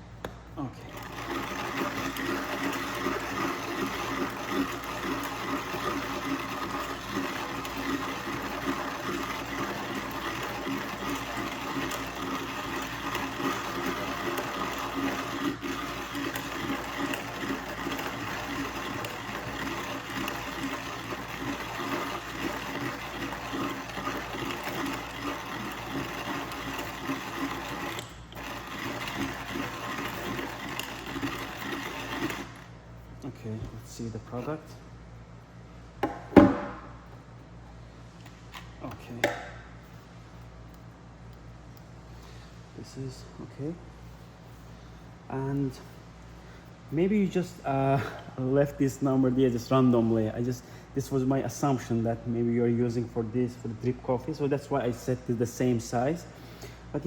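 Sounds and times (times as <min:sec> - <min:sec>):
manual coffee grinder grinding: 0:00.8 - 0:32.8.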